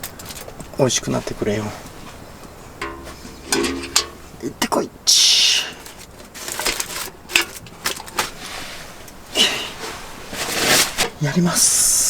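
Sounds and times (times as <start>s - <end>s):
cooking gear clicking and knocking: 0.0s - 0.7s, 2.4s - 4.5s, 5.8s - 8.4s.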